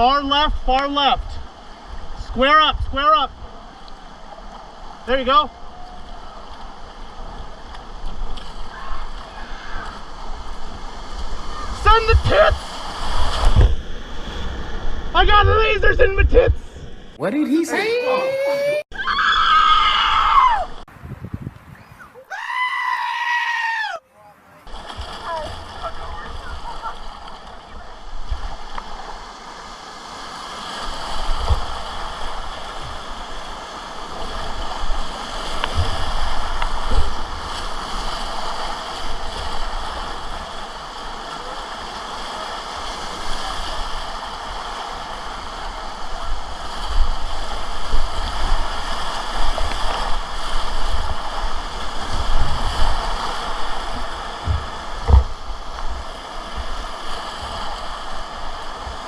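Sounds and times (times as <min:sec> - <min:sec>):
whitewater rapids rushing: 0:00.0 - 0:14.2
short low thuds: 0:54.4 - 0:56.0.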